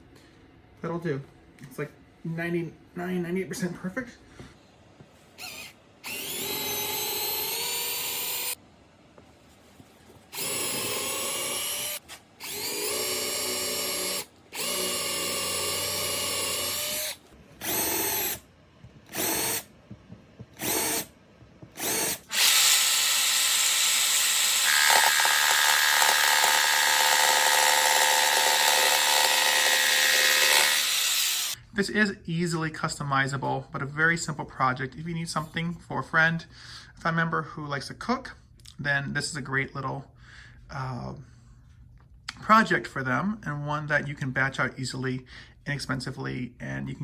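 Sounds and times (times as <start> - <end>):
power drill boring into wood: 5.4 - 8.6, 10.3 - 18.4, 19.1 - 19.6, 20.6 - 21.1, 21.8 - 31.6.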